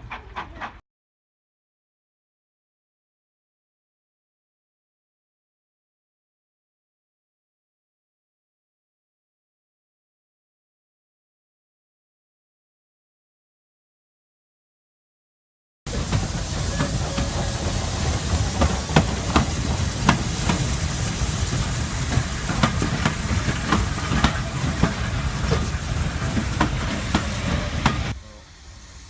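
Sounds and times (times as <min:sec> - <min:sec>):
steam train hiss and rumble: 0:15.9 - 0:29.0.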